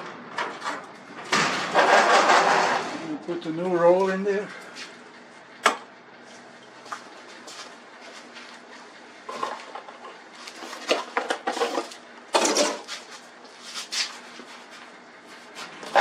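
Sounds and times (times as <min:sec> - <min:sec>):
metal scrape: 0:01.6 - 0:03.1.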